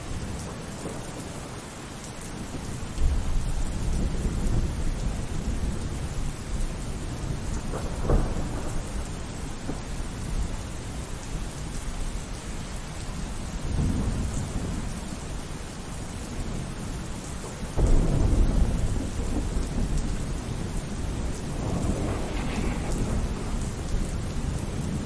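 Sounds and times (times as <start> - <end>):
steady rain: 0.0 - 25.0
thunder rumbling: 17.8 - 25.0.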